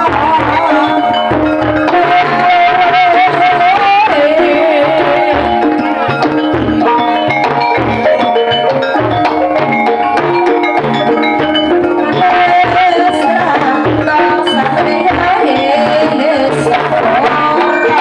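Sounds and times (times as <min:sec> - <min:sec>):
person singing: 0:00.0 - 0:06.2, 0:11.7 - 0:18.0
metallic percussion: 0:00.0 - 0:18.0.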